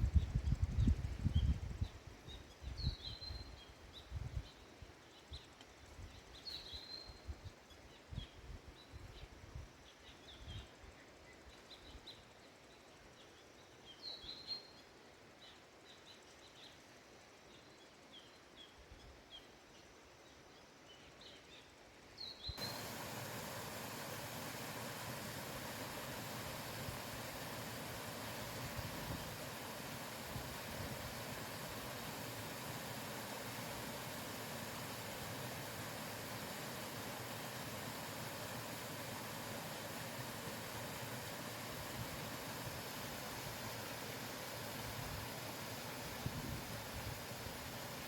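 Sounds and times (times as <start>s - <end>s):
small birds chirping: 22.2s - 48.0s
steady rushing noise: 22.6s - 48.0s.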